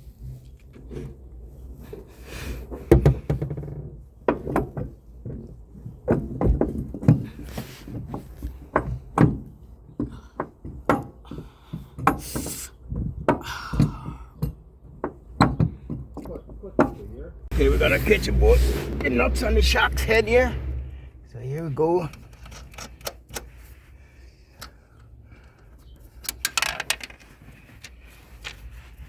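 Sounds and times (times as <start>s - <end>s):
tools and metal parts clanking: 22.0s - 23.6s, 24.6s - 28.7s.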